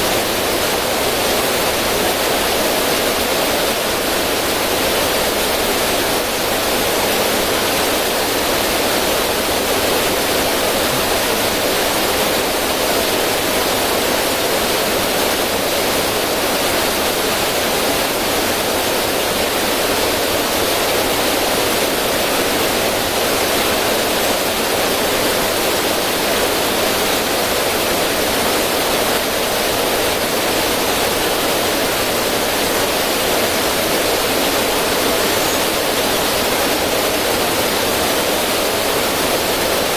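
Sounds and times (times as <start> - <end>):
river water over rocks: 0.0 - 39.9.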